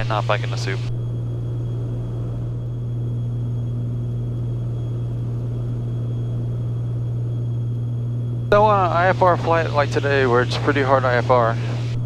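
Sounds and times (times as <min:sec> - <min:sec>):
propeller plane engines droning: 0:00.0 - 0:12.0.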